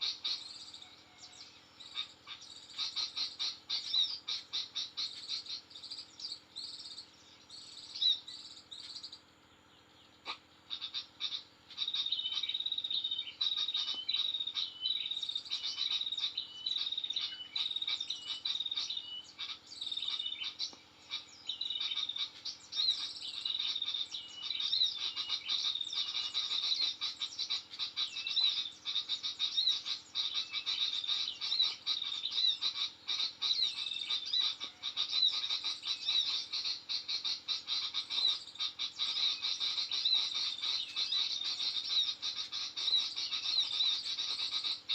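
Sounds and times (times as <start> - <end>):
high-pitched clicking animal calls: 13.4 - 14.7, 17.6 - 44.9.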